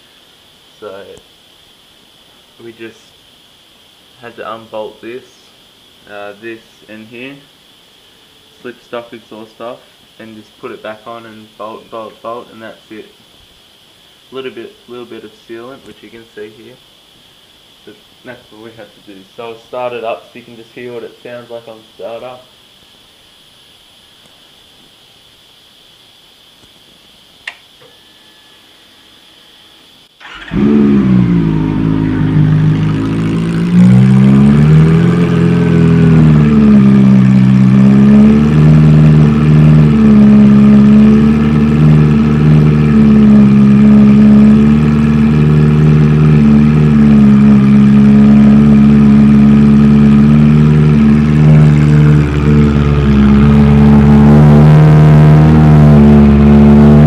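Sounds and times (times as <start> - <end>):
motorcycle engine idling: 30.2 - 57.0.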